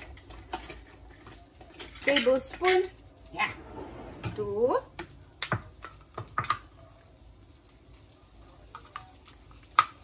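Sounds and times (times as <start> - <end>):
spoon and utensils clinking: 0.0 - 3.0
butter sizzling in a pan: 4.4 - 10.0.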